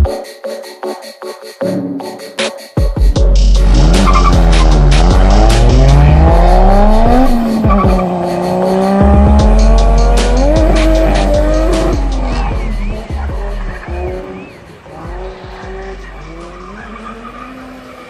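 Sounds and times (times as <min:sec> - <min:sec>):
music with heavy bass: 0:00.0 - 0:17.6
car engine revving hard: 0:03.6 - 0:18.0
tires squealing: 0:03.6 - 0:18.0.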